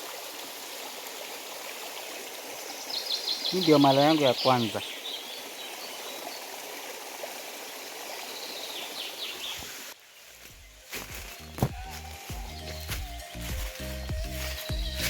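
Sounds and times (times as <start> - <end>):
stream rushing: 0.0 - 15.0
music: 10.5 - 15.0.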